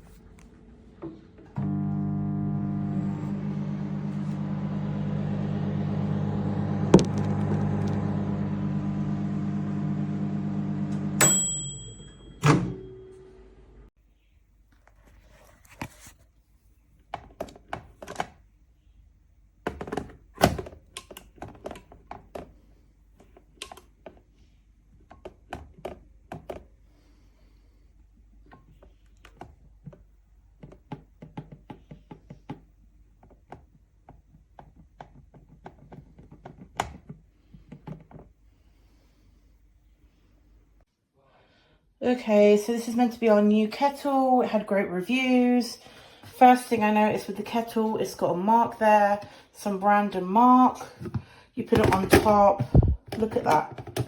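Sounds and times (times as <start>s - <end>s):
microwave humming: 1.5s - 13.9s
microwave timer bell ding: 11.2s - 13.2s.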